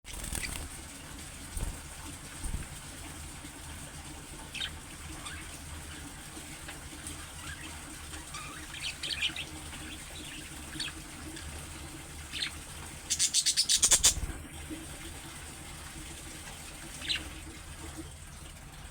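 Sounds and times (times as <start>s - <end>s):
low background hum: 0.1s - 18.9s
budgerigar chirping: 13.1s - 14.2s.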